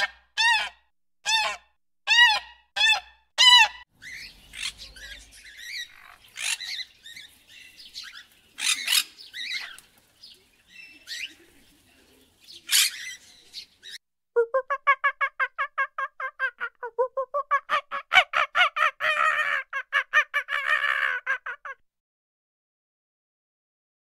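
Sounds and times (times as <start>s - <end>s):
budgerigars chattering: 3.5s - 9.8s, 12.4s - 14.0s.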